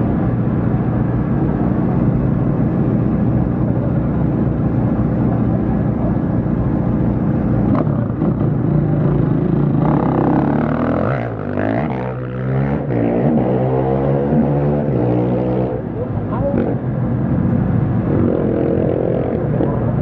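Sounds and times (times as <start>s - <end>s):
racing engines running: 0.0s - 20.0s.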